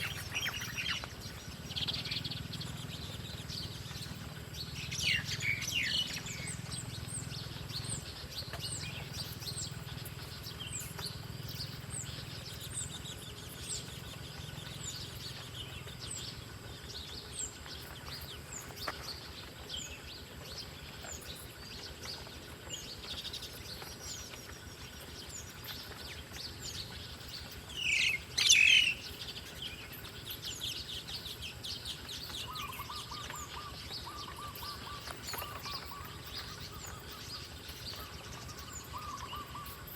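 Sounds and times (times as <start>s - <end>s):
birds chirping: 0.0s - 39.9s
bird trilling: 27.7s - 29.2s, 32.2s - 39.9s.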